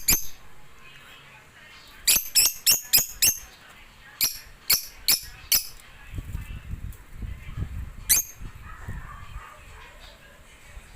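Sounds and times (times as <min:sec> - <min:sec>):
bird chirping: 0:01.9 - 0:03.6.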